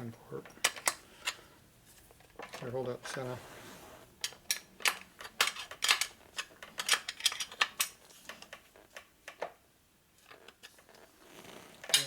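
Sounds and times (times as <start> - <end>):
metallic clicks of tools and parts: 0.4 - 1.4, 4.2 - 9.5.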